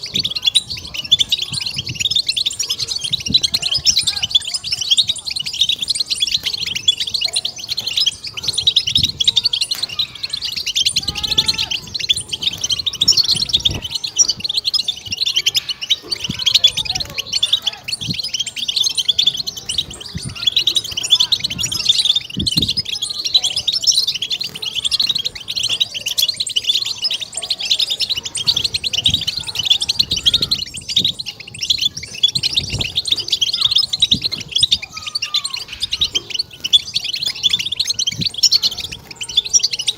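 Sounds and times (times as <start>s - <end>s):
goldfinch twittering song: 0.0s - 39.9s.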